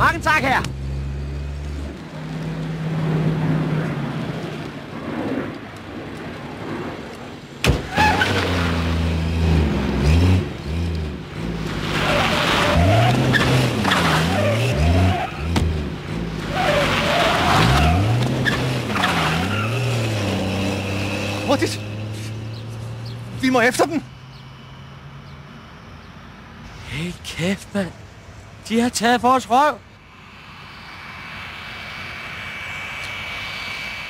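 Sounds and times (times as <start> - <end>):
tyres skidding: 0.0 - 34.0
car engine revving hard: 8.0 - 23.5.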